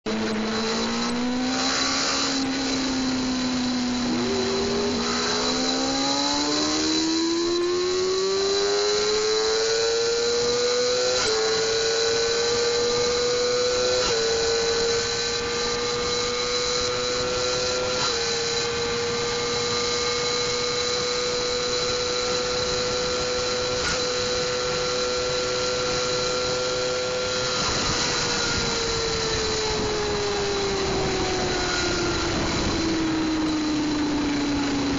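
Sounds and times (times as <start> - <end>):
motorcycle engine revving: 0.1 - 34.9
wind rush: 27.3 - 34.9.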